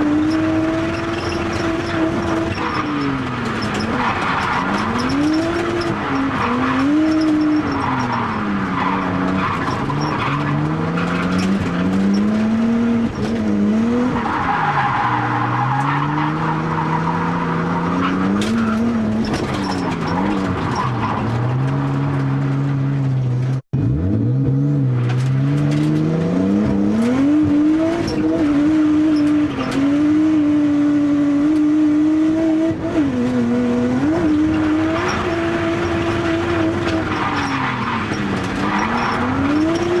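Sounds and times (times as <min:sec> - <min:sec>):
tyre squeal: 0:00.0 - 0:12.3, 0:14.1 - 0:21.8, 0:34.0 - 0:40.0
turbocharged car engine revving: 0:00.0 - 0:40.0.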